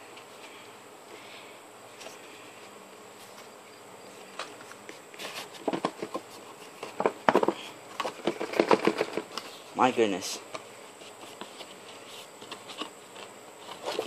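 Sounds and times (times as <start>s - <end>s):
cardboard and plastic crackling: 4.4s - 9.6s, 10.4s - 14.0s.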